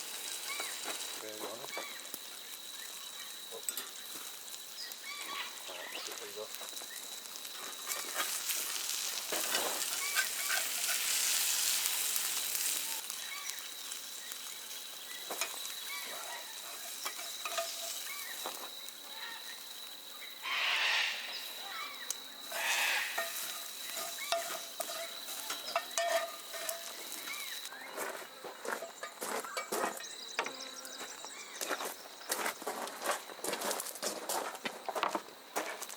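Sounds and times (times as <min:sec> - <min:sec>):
loud hisses: 0:00.0 - 0:27.9
food sizzling in a pan: 0:00.0 - 0:32.2.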